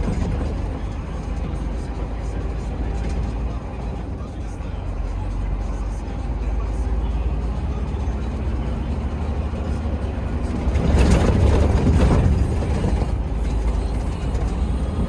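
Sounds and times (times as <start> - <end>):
heavy truck engine drone: 0.0 - 15.0
road noise: 0.0 - 15.0.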